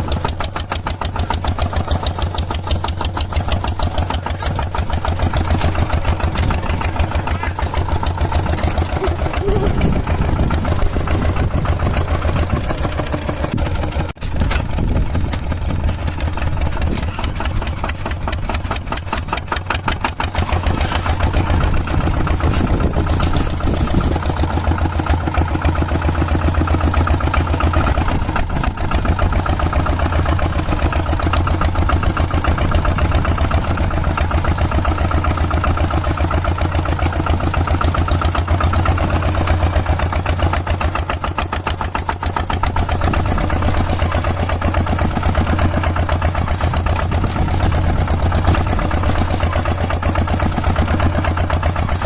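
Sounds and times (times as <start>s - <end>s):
tractor engine chugging: 0.0s - 52.0s.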